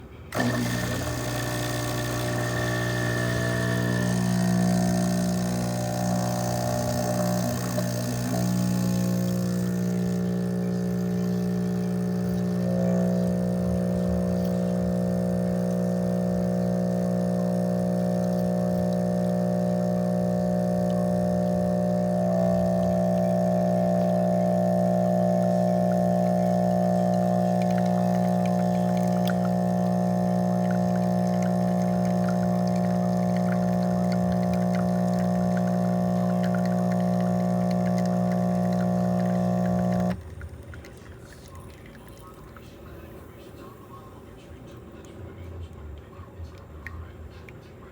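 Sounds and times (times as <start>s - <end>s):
espresso machine pump buzzing: 0.0s - 43.3s.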